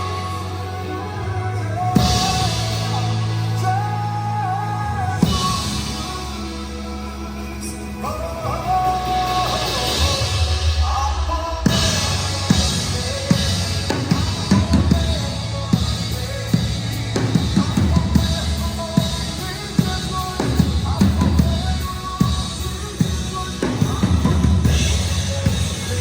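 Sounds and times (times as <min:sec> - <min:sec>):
band music: 0:00.0 - 0:26.0
drum kit beat: 0:01.5 - 0:03.9, 0:08.4 - 0:26.0.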